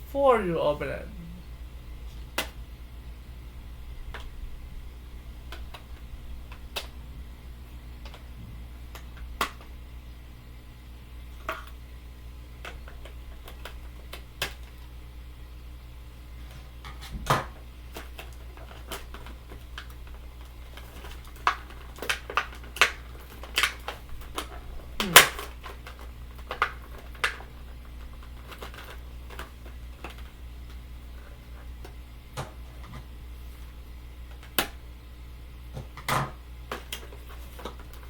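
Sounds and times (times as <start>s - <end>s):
low steady hum: 0.0s - 38.0s
packaging snapping: 18.0s - 30.3s.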